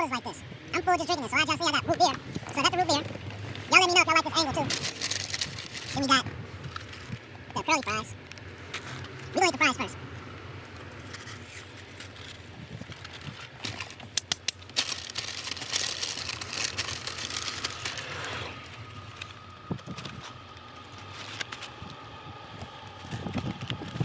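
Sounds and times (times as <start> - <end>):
crunching fries: 3.7 - 7.2, 10.6 - 24.0.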